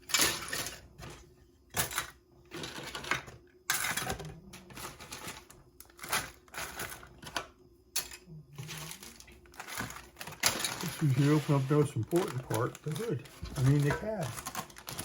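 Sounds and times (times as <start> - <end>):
plastic parts clicking and clattering: 0.0 - 15.0
packaging rustling: 8.6 - 15.0.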